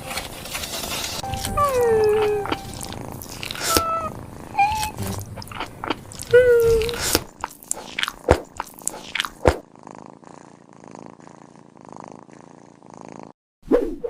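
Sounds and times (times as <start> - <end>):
cat crunching food: 0.0 - 9.6
cat purring: 1.2 - 13.4.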